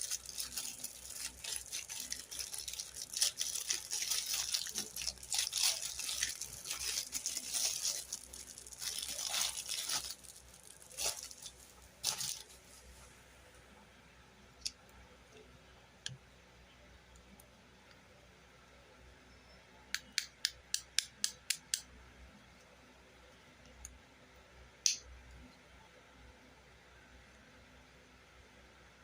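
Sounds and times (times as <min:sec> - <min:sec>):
packaging crinkling and tearing: 0:00.0 - 0:12.6.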